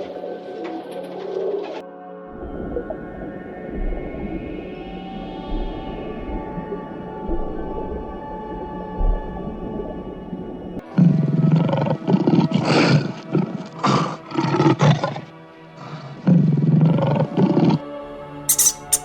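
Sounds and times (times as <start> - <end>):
background music: 0.0 - 19.0
big cat roaring and growling: 11.0 - 17.9.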